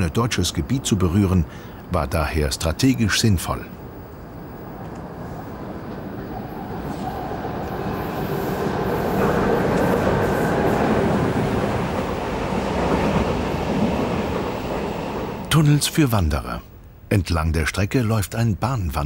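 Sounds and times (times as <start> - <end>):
train wheels rumbling past: 4.3 - 16.0.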